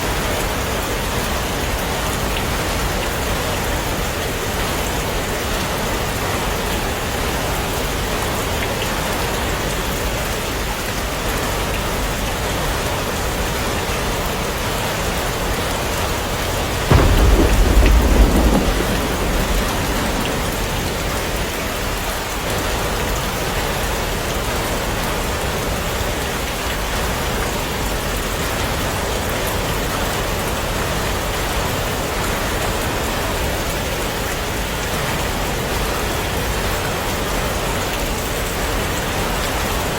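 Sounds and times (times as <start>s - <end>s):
heavy rain: 0.0s - 39.9s
thunder crack rumbling: 15.9s - 23.2s.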